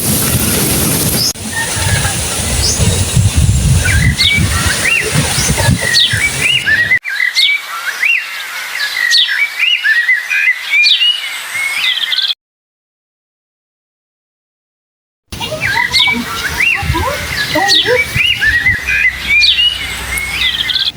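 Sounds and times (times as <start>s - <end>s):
birds chirping: 0.1s - 7.0s, 15.3s - 20.9s.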